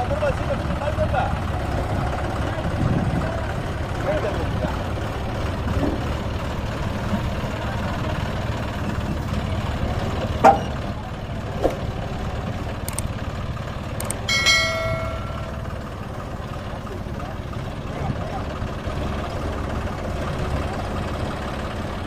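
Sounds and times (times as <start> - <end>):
heavy machinery engine running: 0.0 - 22.0
brief ringing tone: 14.3 - 15.8.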